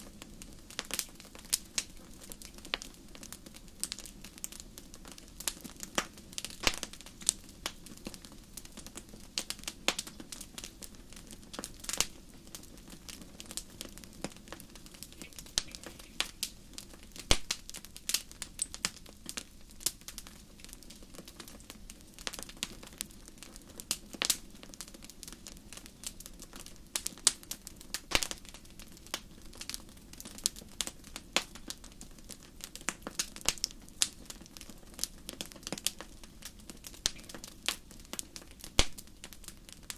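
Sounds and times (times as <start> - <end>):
wood fire crackling: 0.0 - 39.9
sharp pops and snaps: 5.5 - 8.2, 13.0 - 21.0, 28.0 - 29.2, 32.8 - 39.9.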